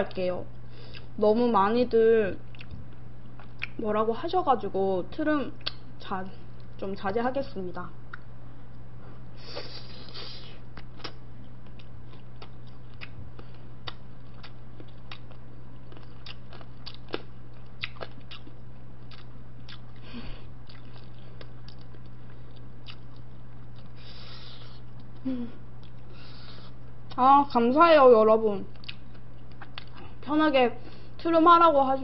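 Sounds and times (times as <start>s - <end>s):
steady low hum: 0.0s - 32.0s
person chewing food: 0.9s - 1.1s, 2.5s - 3.8s, 9.5s - 27.2s, 28.7s - 30.2s
mouth clicks and smacks: 3.4s - 3.8s.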